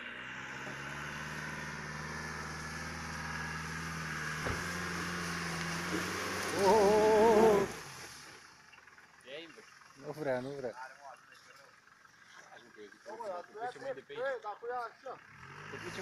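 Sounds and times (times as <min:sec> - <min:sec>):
car engine under load: 0:00.0 - 0:13.8
person shouting: 0:06.6 - 0:07.7.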